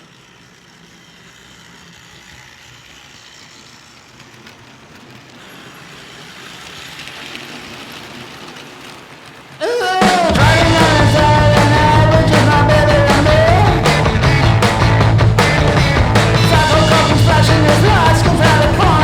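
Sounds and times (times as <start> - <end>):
model train whirring on track: 0.0 - 19.0.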